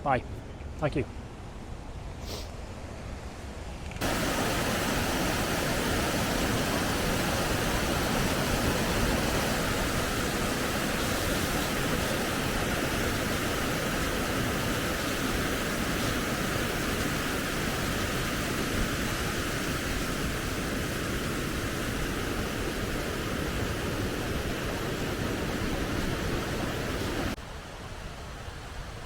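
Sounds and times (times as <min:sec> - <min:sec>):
waterfall roaring: 0:04.0 - 0:29.0.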